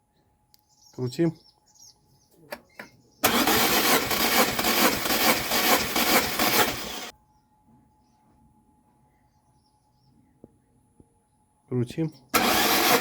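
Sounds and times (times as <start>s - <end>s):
engine cranking on starter: 3.2s - 7.1s, 12.3s - 13.0s.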